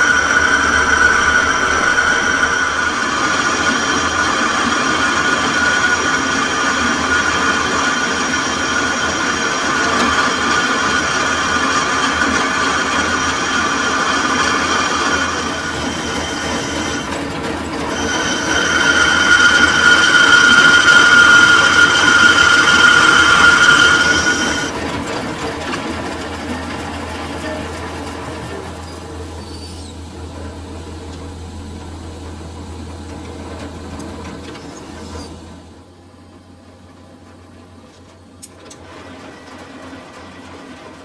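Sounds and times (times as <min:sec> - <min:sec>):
lathe tool high-pitched ring: 0:00.0 - 0:24.8, 0:26.4 - 0:33.7
lathe machine running: 0:00.0 - 0:41.0.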